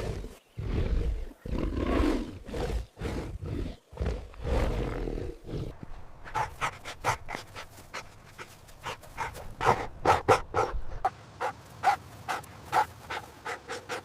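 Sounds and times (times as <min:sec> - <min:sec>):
big cat roaring: 0:00.0 - 0:05.7
dog panting: 0:06.2 - 0:14.0.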